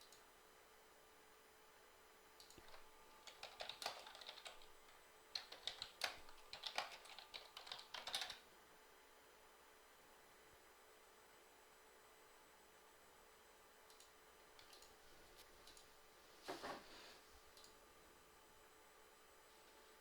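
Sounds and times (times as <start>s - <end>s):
typing on a computer keyboard: 2.4s - 8.4s, 13.9s - 15.0s.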